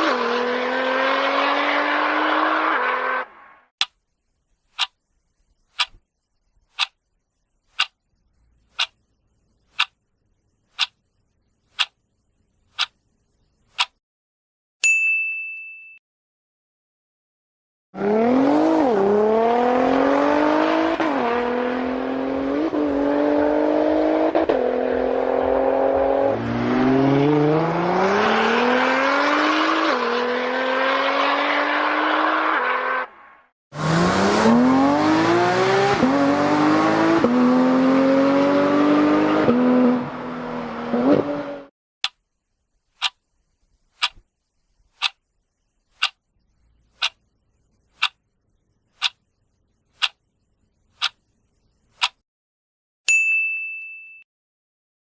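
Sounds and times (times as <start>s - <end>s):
car engine accelerating: 0.0s - 3.7s, 18.0s - 33.2s, 33.8s - 41.7s.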